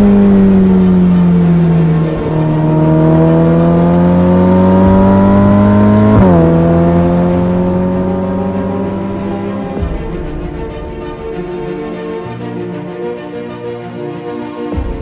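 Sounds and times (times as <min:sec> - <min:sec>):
sports car engine revving: 0:00.0 - 0:11.6.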